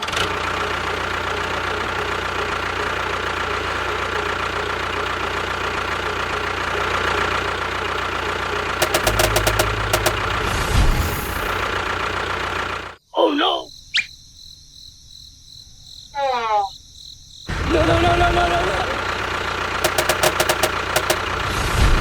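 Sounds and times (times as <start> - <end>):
engine idling: 0.6 - 12.9, 17.5 - 21.9
rapid clicks: 8.8 - 10.5, 19.8 - 21.4.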